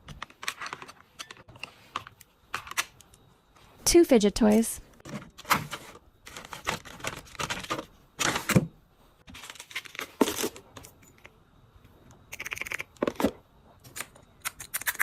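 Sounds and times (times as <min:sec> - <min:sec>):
plastic items clicking and crinkling: 0:00.0 - 0:03.2, 0:05.0 - 0:08.6, 0:09.3 - 0:11.3.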